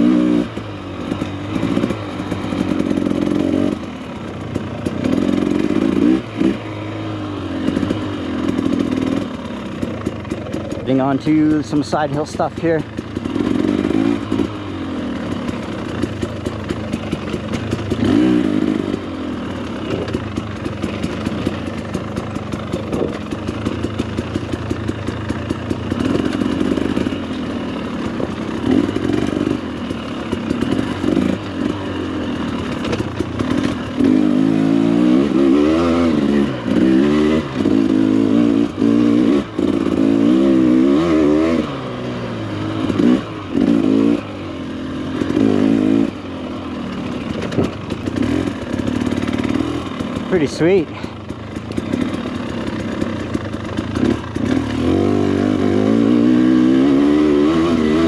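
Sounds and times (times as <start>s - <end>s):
dirt bike engine revving: 0.0s - 58.0s
bike rattling clatter: 8.6s - 14.5s, 15.2s - 18.3s, 19.6s - 27.2s, 32.4s - 34.1s, 47.0s - 55.0s.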